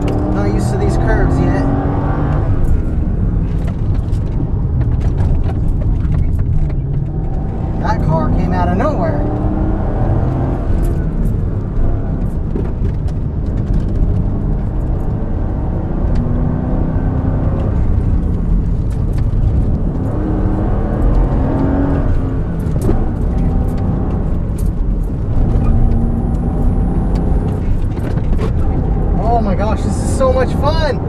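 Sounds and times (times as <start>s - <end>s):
car engine accelerating hard: 0.0s - 31.0s.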